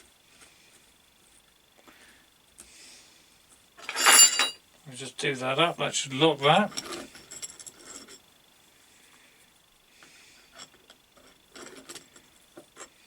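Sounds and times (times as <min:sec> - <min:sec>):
faint clicks and metal clinks: 0:03.8 - 0:04.6, 0:06.7 - 0:08.3, 0:10.5 - 0:13.0.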